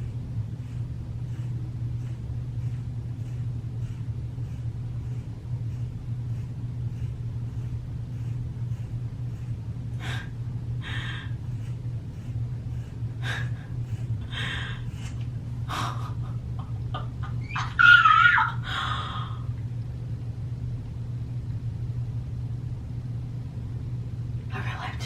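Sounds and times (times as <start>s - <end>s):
steady low hum: 0.0s - 25.0s
wavering squeak: 17.4s - 18.5s.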